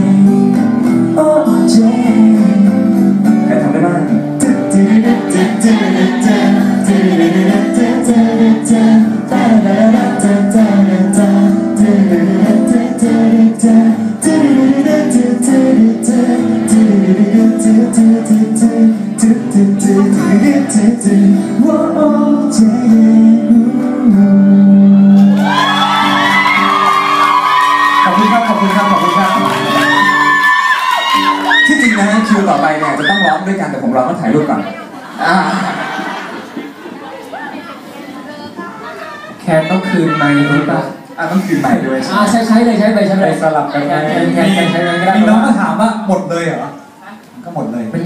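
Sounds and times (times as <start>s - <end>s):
strummed guitar music: 0.0s - 28.0s.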